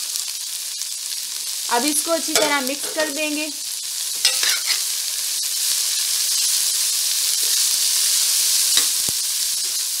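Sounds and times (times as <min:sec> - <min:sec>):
food sizzling in hot oil: 0:00.0 - 0:10.0
spoon knocking against pan: 0:02.3 - 0:03.2
metal spoon stirring: 0:04.3 - 0:04.8.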